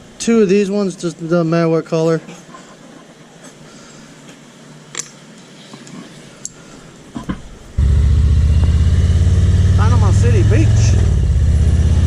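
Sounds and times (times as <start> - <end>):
motorcycle engine running: 7.8 - 12.0.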